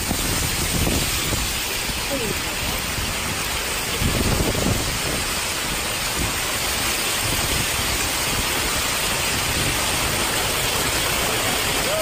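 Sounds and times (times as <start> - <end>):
heavy rain in strong wind: 0.0 - 12.0.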